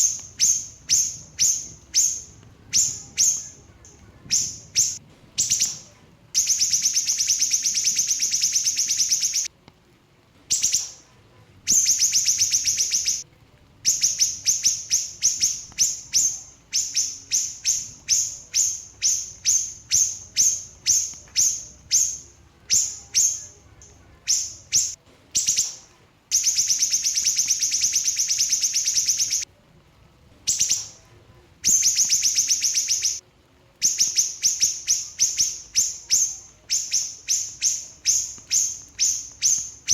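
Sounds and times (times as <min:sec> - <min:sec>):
bird singing fast trill: 0:06.4 - 0:09.5, 0:11.7 - 0:13.2, 0:24.2 - 0:29.4.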